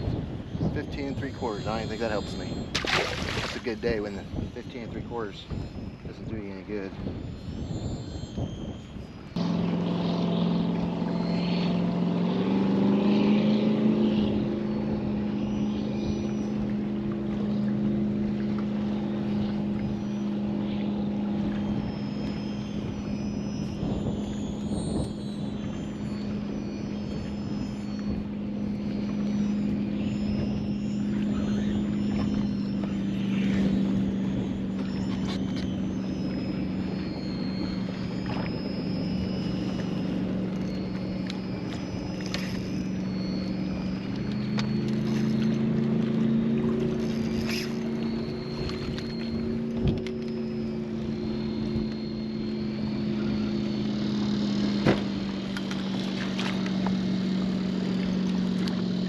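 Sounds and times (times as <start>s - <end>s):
electric motor humming: 12.8s - 59.0s.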